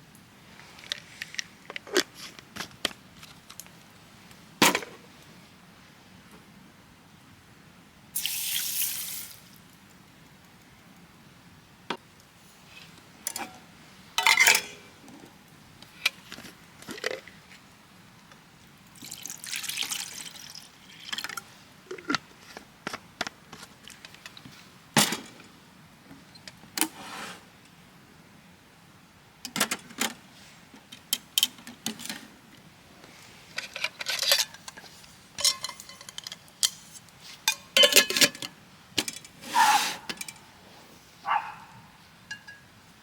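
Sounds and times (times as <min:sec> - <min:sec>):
liquid pouring: 0:19.0 - 0:21.4.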